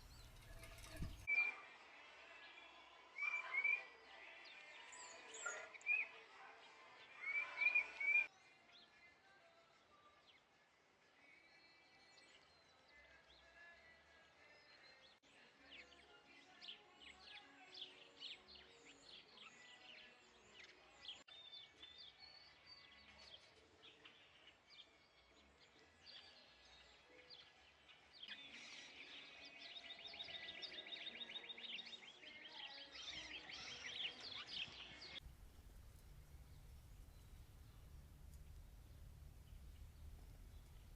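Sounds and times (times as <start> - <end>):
small birds chirping: 0.0 - 1.4, 16.6 - 40.9.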